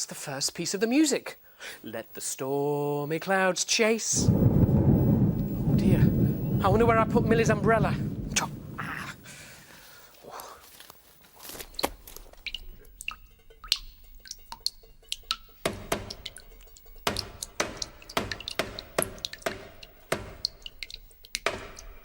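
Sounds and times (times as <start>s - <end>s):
water dripping: 4.1s - 10.0s, 11.4s - 22.0s.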